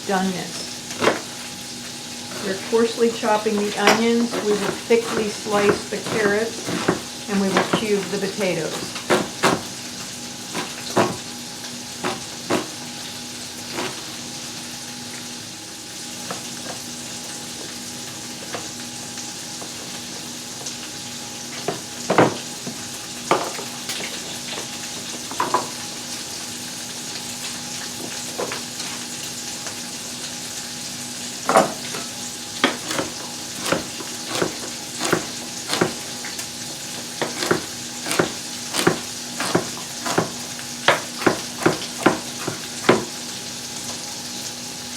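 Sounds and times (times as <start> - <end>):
chicken sizzling in a pan: 0.0 - 44.9.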